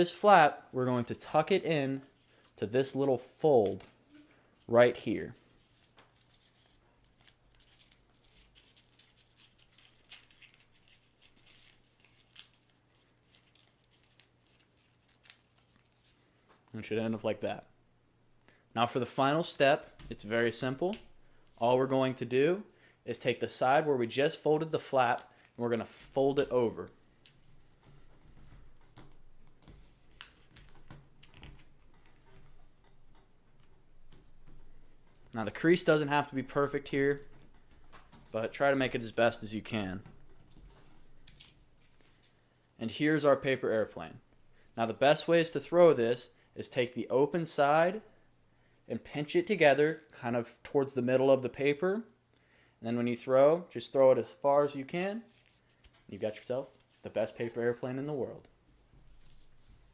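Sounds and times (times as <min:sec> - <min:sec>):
paper crinkling: 0:05.2 - 0:16.5, 0:27.1 - 0:42.6, 0:55.2 - 0:57.2.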